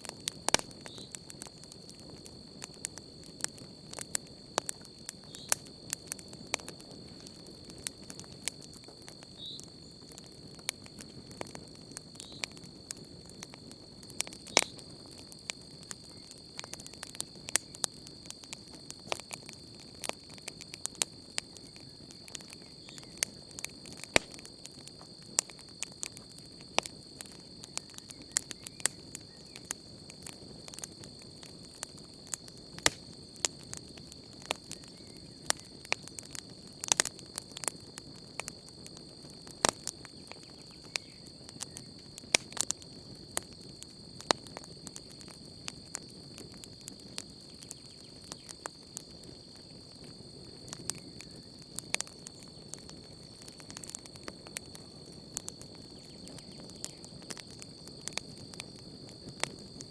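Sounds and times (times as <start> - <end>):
campfire crackling and popping: 0.0 - 59.9
crickets trilling: 0.0 - 59.9.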